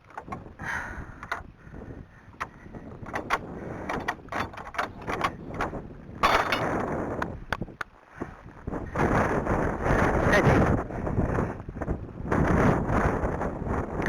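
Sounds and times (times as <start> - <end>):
sharp knocks and clicks: 0.0 - 1.5, 2.4 - 6.9
wind buffeting microphone: 0.0 - 14.0.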